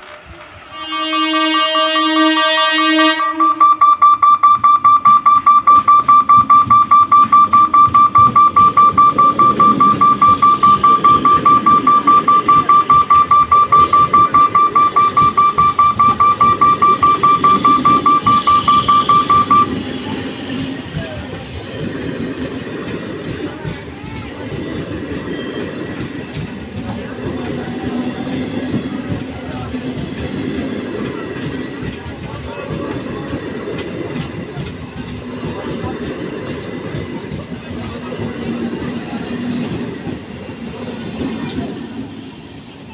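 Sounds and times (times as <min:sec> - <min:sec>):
horn: 0:00.7 - 0:03.6
level crossing warning bell: 0:01.2 - 0:19.9.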